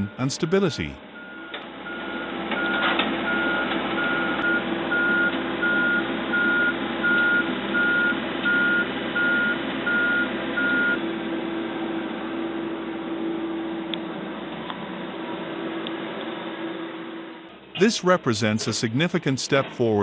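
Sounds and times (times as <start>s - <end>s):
backup alarm beeping: 0.0s - 11.0s
diesel engine running: 0.0s - 20.0s.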